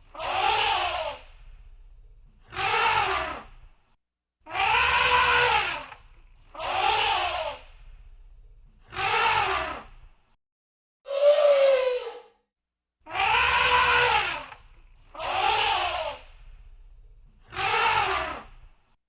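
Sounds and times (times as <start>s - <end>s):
elephant trumpeting: 4.5s - 5.9s, 13.1s - 14.5s.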